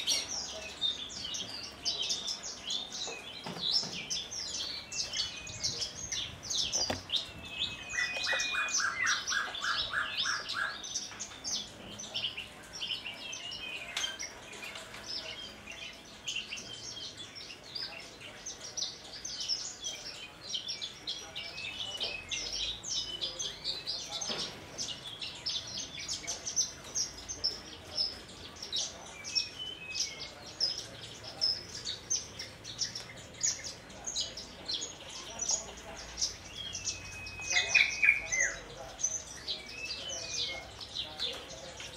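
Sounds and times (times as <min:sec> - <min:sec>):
bush lark singing: 0:00.0 - 0:14.6.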